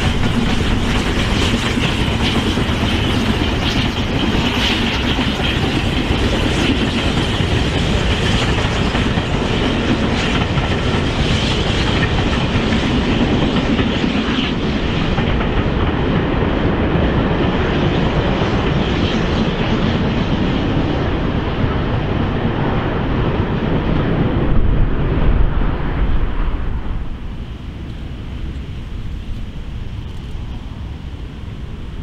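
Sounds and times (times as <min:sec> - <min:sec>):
train wheels clattering over rails: 0:00.0 - 0:22.2.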